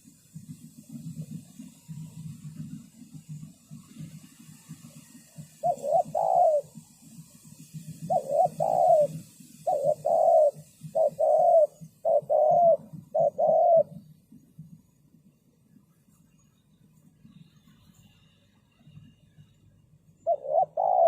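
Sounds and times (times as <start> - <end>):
dove cooing: 0.0 - 14.7, 20.2 - 21.0.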